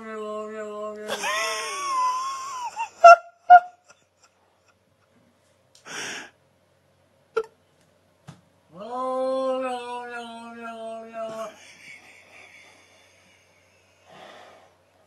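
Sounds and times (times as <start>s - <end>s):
breathy gasp: 5.9s - 6.4s.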